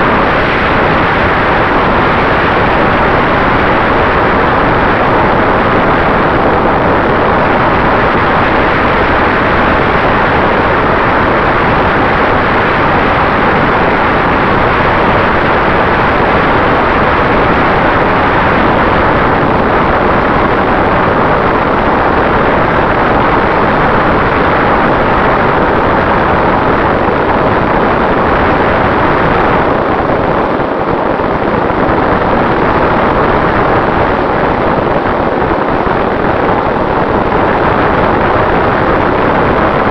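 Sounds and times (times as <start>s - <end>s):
wind and propeller rush: 0.0s - 39.9s.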